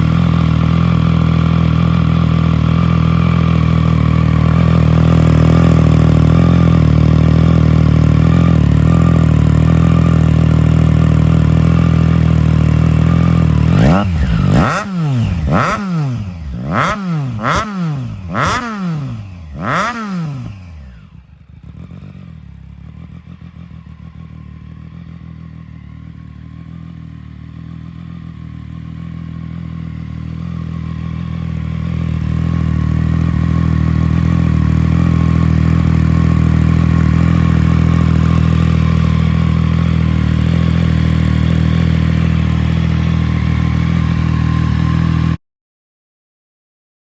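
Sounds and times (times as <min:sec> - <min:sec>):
motorcycle engine idling: 0:00.0 - 0:45.4.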